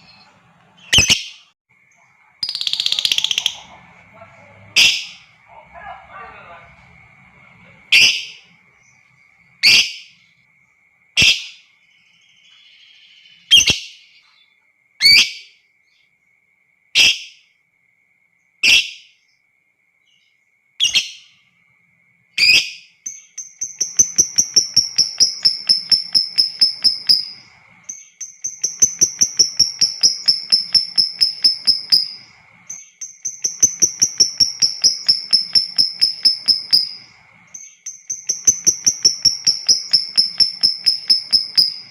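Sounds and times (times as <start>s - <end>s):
lovebird chattering trills: 0.0s - 1.4s, 2.4s - 10.2s, 22.4s - 41.9s
lovebird sharp calls: 0.8s - 1.5s, 2.4s - 3.9s, 4.7s - 5.4s, 7.9s - 8.5s, 9.6s - 10.2s, 22.4s - 41.9s.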